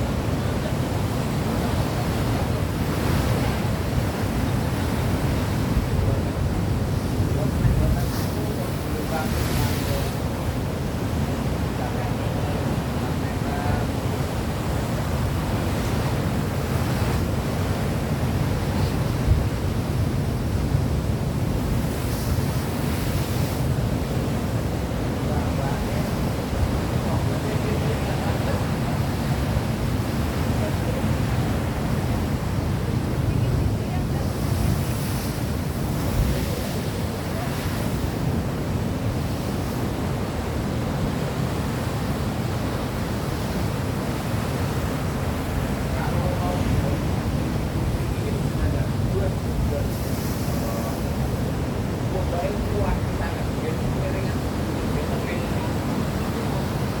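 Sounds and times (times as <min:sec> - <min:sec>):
surf rushing: 0:00.0 - 0:57.0
wind: 0:00.0 - 0:57.0
steady rushing noise: 0:44.7 - 0:57.0.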